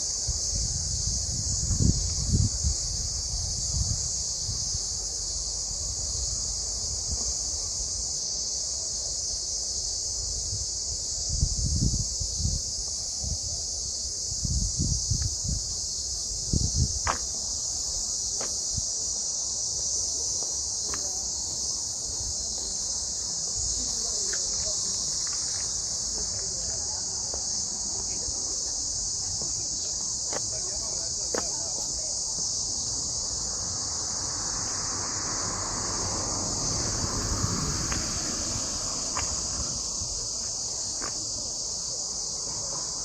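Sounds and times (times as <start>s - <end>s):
wind rumbling on microphone: 0.0s - 8.4s, 9.4s - 19.2s, 31.9s - 42.0s
cicadas buzzing: 0.0s - 43.0s.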